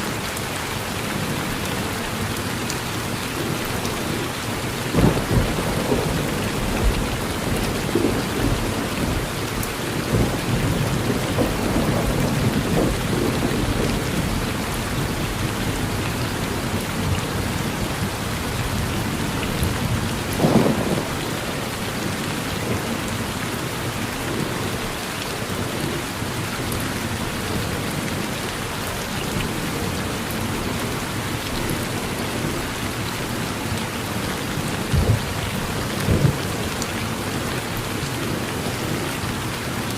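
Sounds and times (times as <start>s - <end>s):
steady rain on a porch: 0.0s - 39.9s
low rolling thunder: 4.9s - 23.4s, 34.6s - 36.7s.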